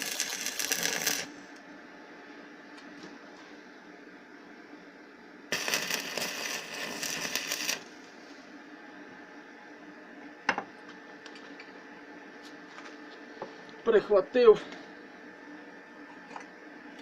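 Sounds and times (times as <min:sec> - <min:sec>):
welding arc crackling: 0:00.0 - 0:01.4, 0:05.5 - 0:08.0.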